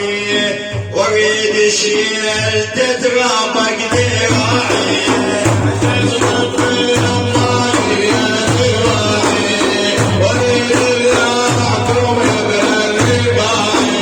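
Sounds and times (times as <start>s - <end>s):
frame drums beating: 3.9s - 14.0s.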